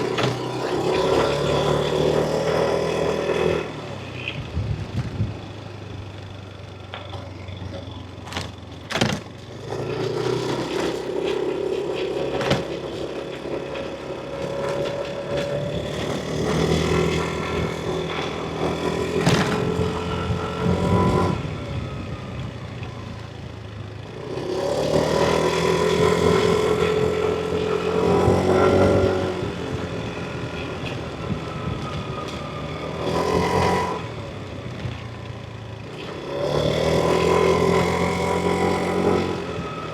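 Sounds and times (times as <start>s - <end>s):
road and wind noise: 0.0s - 39.9s
scooter engine accelerating: 0.0s - 39.9s
sharp knocks: 8.3s - 9.4s, 12.4s - 12.9s.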